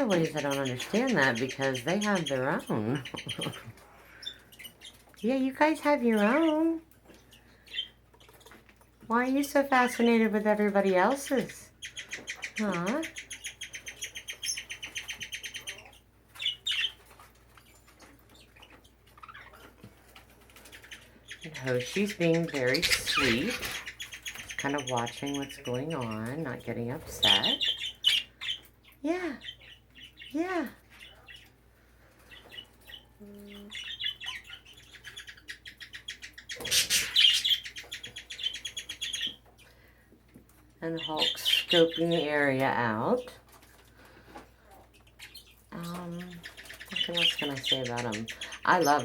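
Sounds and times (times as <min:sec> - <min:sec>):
budgies chirping: 0:00.0 - 0:49.0.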